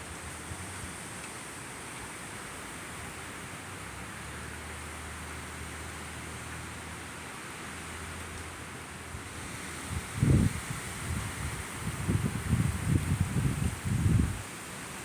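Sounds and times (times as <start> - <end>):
thunderstorm hiss: 9.2 - 15.0.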